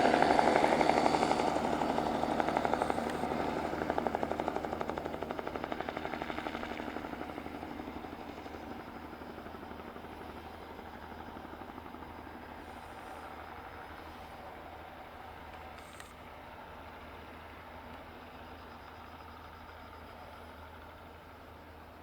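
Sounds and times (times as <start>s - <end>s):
helicopter rotor beating: 0.0s - 21.7s.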